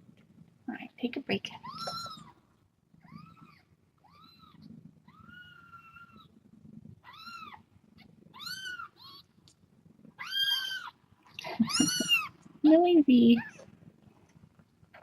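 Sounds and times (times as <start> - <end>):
kittens mewing: 10.2 - 12.4.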